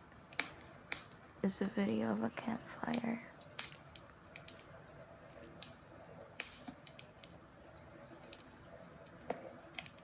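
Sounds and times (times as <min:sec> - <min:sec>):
campfire crackling: 0:00.0 - 0:10.0.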